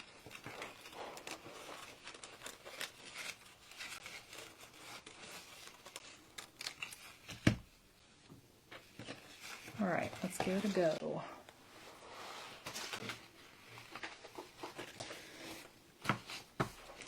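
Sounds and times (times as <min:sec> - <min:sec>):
foil sheet rustling: 0:00.0 - 0:07.3.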